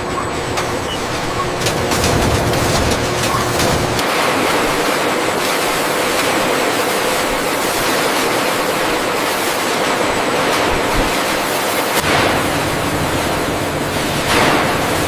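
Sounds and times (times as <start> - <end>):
machinery rushing noise: 0.0 - 15.0.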